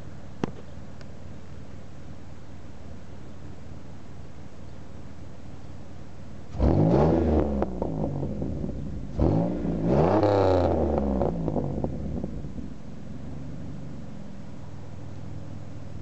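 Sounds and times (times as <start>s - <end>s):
car engine revving: 6.5s - 14.8s
exhaust crackles: 6.5s - 15.0s.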